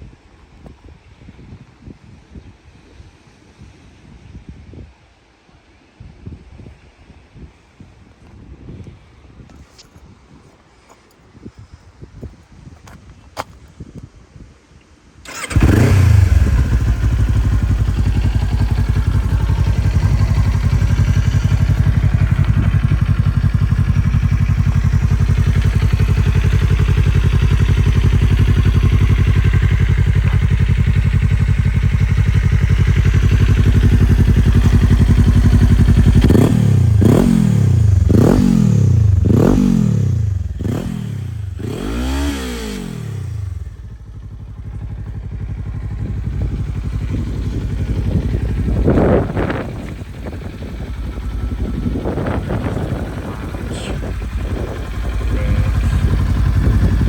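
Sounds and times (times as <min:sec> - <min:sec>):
engine starting: 0:15.3 - 0:17.0
engine revving: 0:15.3 - 0:43.8, 0:47.0 - 0:57.0
motorcycle engine idling: 0:15.3 - 0:57.0.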